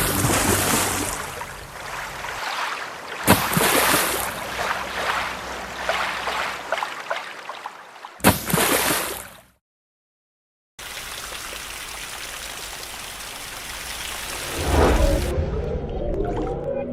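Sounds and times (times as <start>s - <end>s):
rushing whitewater splashing: 0.0s - 8.0s.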